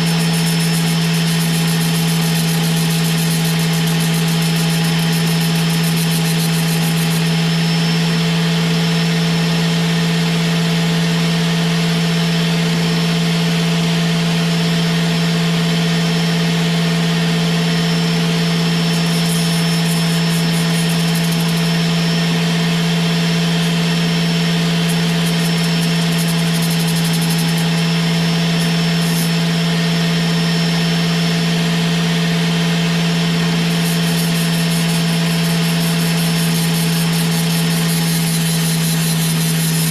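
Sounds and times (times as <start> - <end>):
power drill motor humming: 0.0 - 8.2, 18.6 - 30.5, 33.4 - 39.9
flap disc grinding metal: 18.8 - 22.2, 23.3 - 29.5, 33.6 - 39.9.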